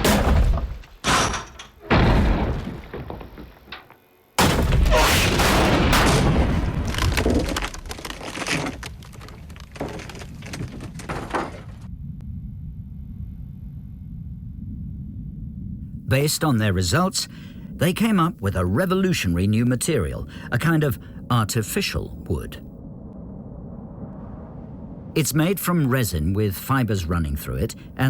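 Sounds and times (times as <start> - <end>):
wood cracking: 0.0 - 11.9
low steady hum: 0.0 - 28.0
loud crash: 4.4 - 7.6.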